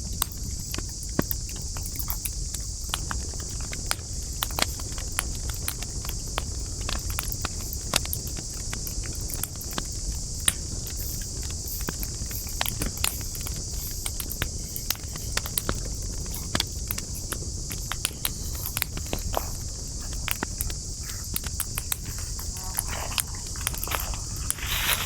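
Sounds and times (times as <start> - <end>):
campfire crackling and popping: 0.0 - 25.0
steady high hiss: 6.0 - 25.0.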